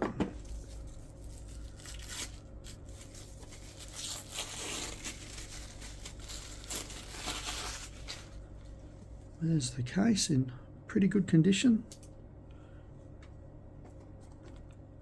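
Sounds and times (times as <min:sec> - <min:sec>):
packaging torn and crinkled: 0:00.4 - 0:08.4.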